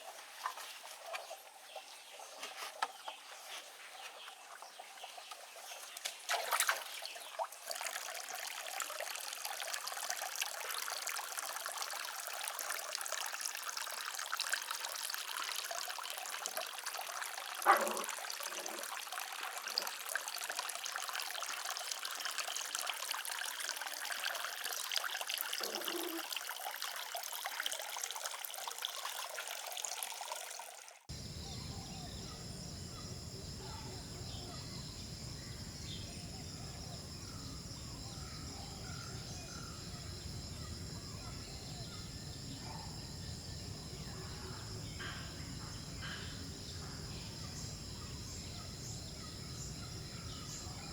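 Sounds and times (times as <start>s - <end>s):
water trickling and splashing: 0.0s - 31.3s
insects buzzing: 31.1s - 50.9s.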